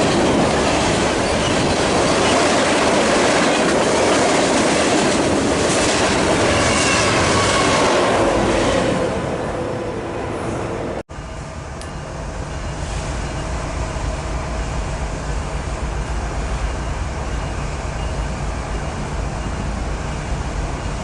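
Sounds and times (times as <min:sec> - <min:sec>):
freight train wheels clattering: 0:00.0 - 0:07.8.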